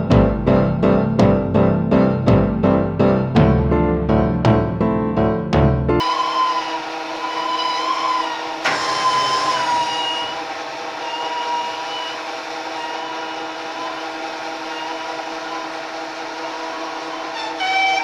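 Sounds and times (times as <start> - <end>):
electric motor whine: 6.0 - 18.0.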